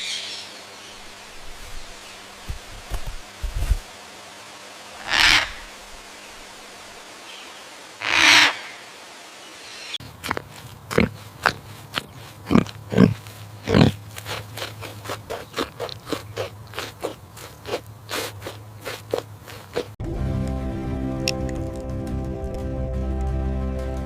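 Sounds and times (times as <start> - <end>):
steady low hum: 0.0 - 8.0
music: 20.0 - 24.0.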